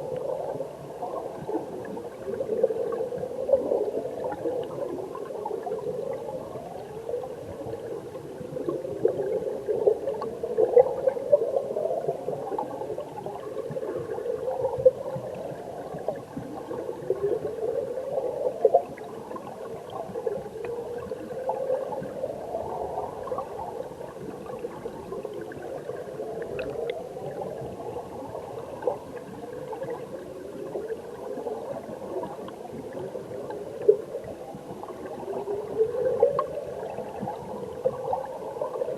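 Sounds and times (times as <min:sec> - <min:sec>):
muffled underwater stream bubbling: 0:00.0 - 0:38.9
air bubble chirps: 0:26.4 - 0:27.0.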